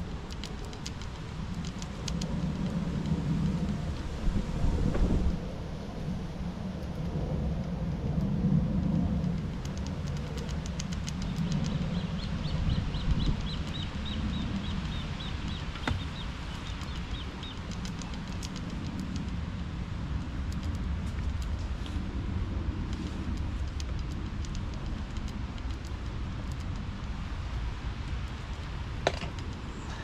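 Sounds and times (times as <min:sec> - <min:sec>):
low rumbling noise: 0:00.0 - 0:30.0
small bird chirping: 0:09.8 - 0:19.0.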